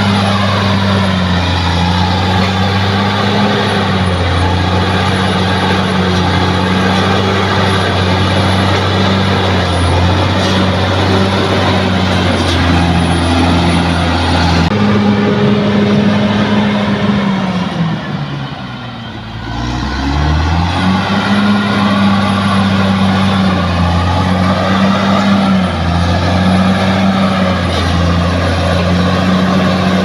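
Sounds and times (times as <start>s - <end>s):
bulldozer diesel engine droning: 0.0s - 30.0s.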